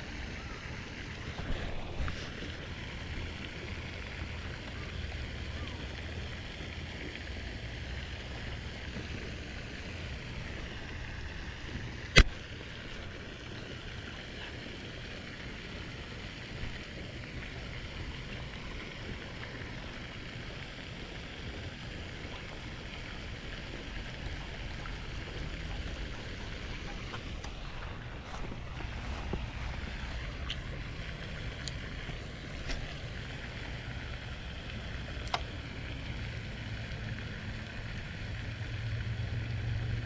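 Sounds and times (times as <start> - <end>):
sharp click: 12.1 - 12.3.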